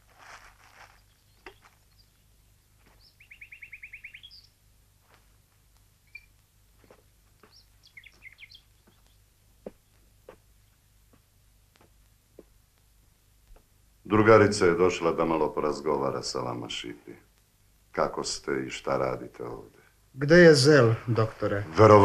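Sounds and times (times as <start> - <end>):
songbird trill: 0.7 - 4.6, 6.0 - 10.0
short bird chirps: 2.9 - 4.6, 6.0 - 6.4, 7.4 - 9.2.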